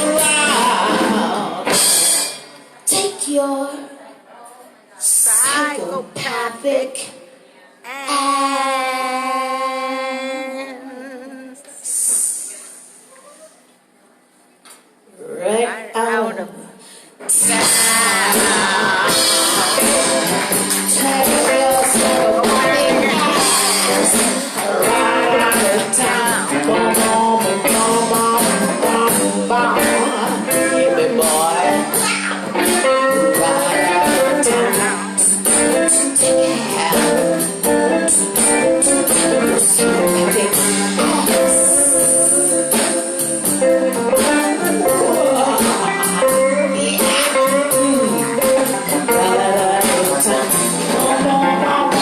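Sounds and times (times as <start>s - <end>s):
lead guitar: 0.0s - 3.1s, 17.3s - 52.0s
blues band playing: 0.0s - 3.6s, 17.2s - 52.0s.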